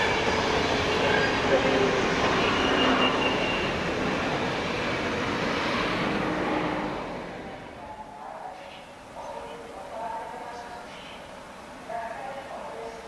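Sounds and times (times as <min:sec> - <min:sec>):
train wheels rumbling on rails: 0:00.0 - 0:07.9.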